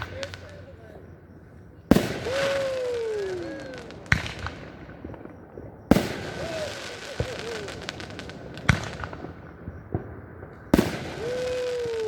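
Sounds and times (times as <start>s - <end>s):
firework booms: 0.0s - 12.0s
spectators saying ooh: 1.7s - 4.7s, 5.9s - 9.0s, 11.0s - 12.0s.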